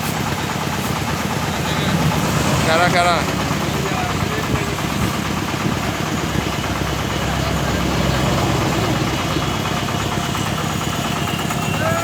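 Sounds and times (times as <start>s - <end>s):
machine engine throbbing: 0.0s - 12.0s.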